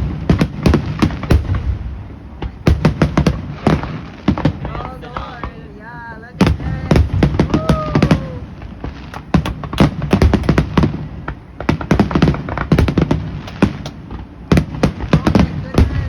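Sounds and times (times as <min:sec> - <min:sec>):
firework shell bangs: 0:06.4 - 0:16.0.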